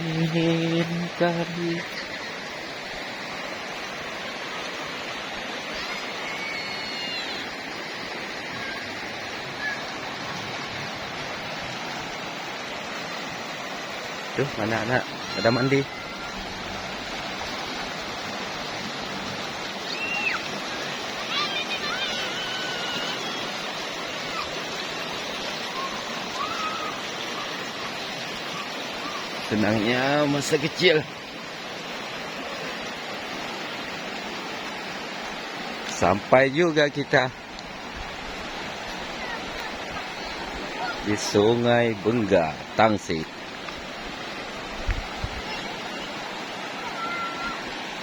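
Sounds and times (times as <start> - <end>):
river water rushing: 0.0 - 48.0
faint high calls: 5.5 - 11.0, 14.9 - 17.0, 19.5 - 29.5, 45.4 - 47.9.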